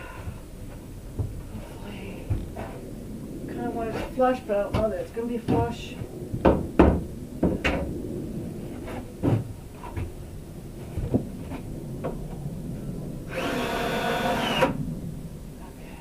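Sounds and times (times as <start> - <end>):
cordless drill whirring: 13.3 - 14.8.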